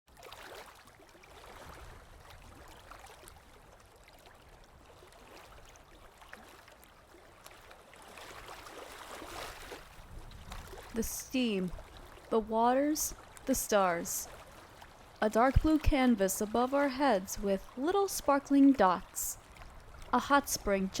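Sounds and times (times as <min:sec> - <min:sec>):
stream trickling and gurgling: 0:00.1 - 0:21.0.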